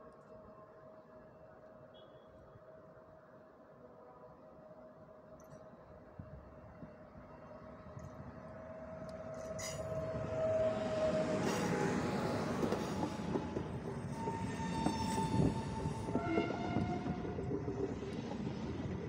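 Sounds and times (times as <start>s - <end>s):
train rumbling past: 6.8s - 19.0s
clicking train wheels: 9.0s - 19.0s.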